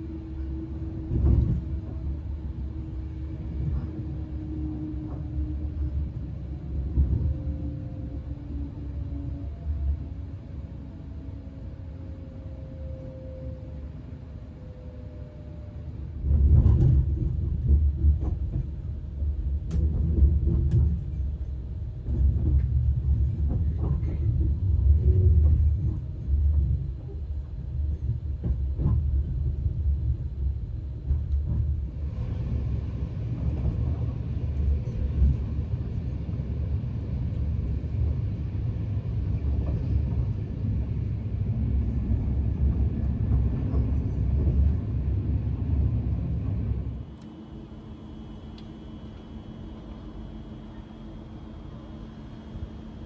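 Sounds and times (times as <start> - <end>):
train rumble: 0.0 - 53.0.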